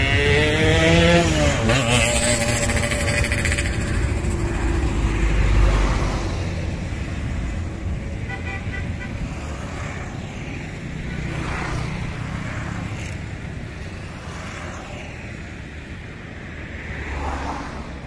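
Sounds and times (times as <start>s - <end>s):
freight train rumbling: 0.0s - 8.1s
road vehicles passing: 0.0s - 18.0s.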